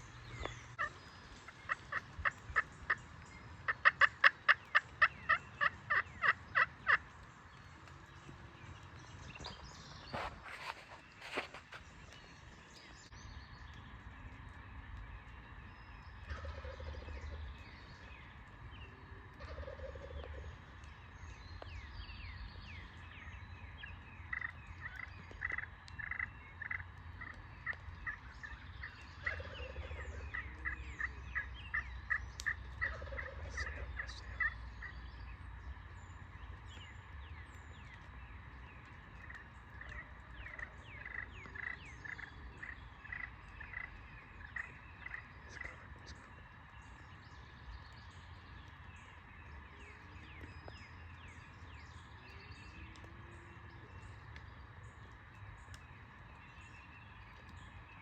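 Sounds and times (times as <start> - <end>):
distant turkey gobbling: 0.8 - 7.1, 19.4 - 20.4, 24.3 - 34.9, 39.2 - 46.1.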